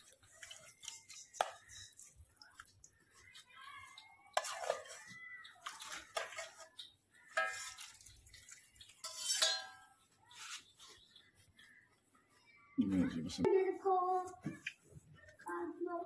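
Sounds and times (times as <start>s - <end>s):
wet dripping and splashing: 0.0s - 9.4s
dish and utensil clinks: 9.0s - 9.9s.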